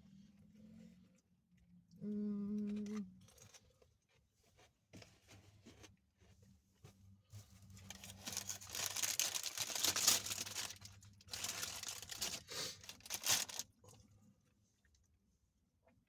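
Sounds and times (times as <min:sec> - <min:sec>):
packaging crinkling: 0:07.7 - 0:13.7.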